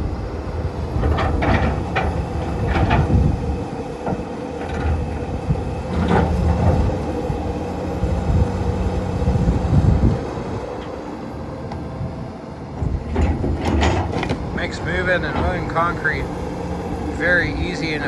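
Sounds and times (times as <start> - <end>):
excavator engine and hydraulics: 0.0 - 18.0
concrete clanking: 13.1 - 16.3.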